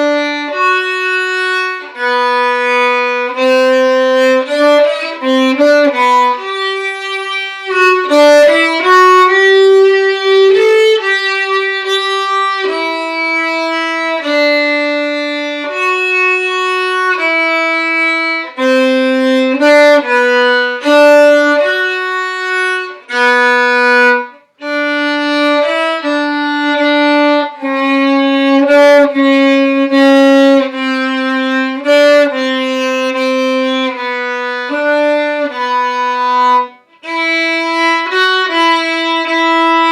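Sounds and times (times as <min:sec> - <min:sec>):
solo violin melody: 0:00.0 - 0:39.9.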